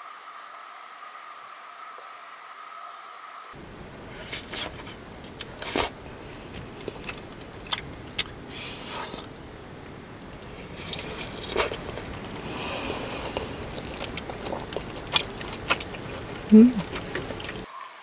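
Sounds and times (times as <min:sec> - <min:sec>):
biting and chewing: 0:03.6 - 0:17.7.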